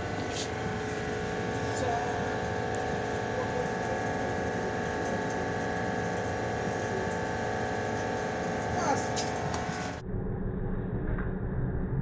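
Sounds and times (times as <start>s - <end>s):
ship machinery rumble and whine: 0.0s - 10.0s.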